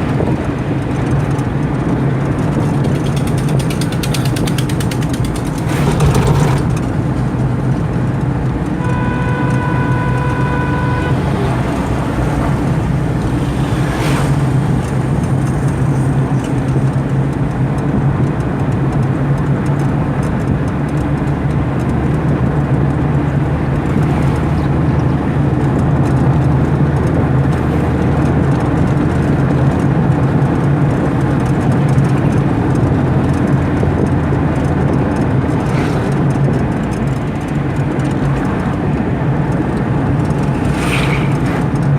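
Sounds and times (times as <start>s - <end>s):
car road and engine noise: 0.0s - 41.9s
car horn: 8.6s - 12.8s.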